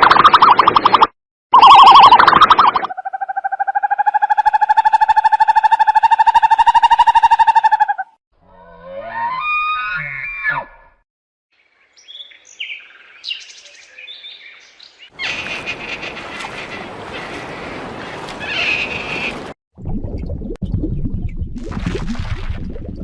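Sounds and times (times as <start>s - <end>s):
birds chirping: 11.6s - 19.5s.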